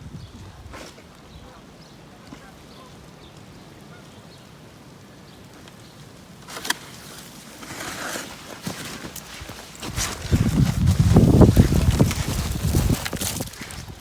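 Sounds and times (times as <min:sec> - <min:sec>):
footsteps crunching on icy snow: 0:06.6 - 0:14.0.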